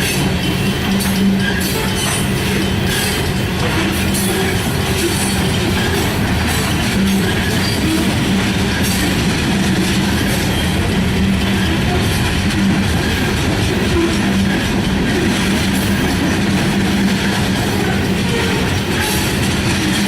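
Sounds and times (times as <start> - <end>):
train wheels rushing on rail: 0.0 - 20.0.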